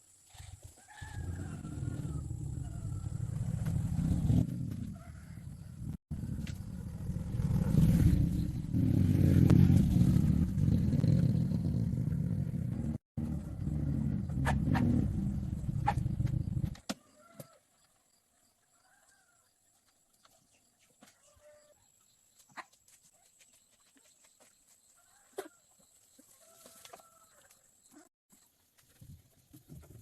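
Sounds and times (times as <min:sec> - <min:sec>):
engine running: 0:06.1 - 0:16.7.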